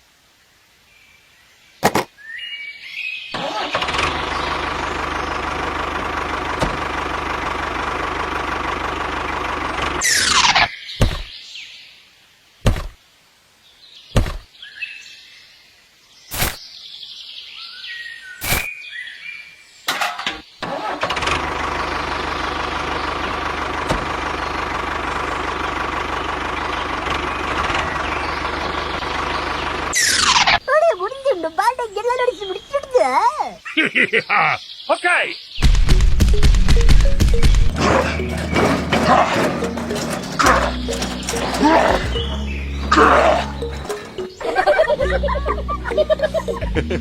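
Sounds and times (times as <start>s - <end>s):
sharp knocks: 11.0s - 11.3s, 12.6s - 13.0s, 14.2s - 14.5s.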